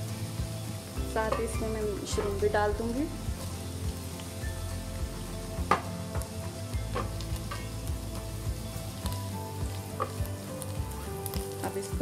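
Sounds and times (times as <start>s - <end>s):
mushrooms and onion sizzling in oil: 0.0s - 12.0s.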